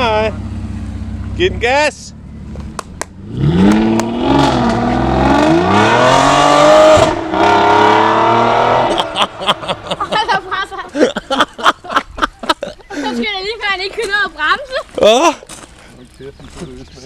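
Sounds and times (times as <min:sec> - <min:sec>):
car engine revving hard: 0:03.2 - 0:09.7.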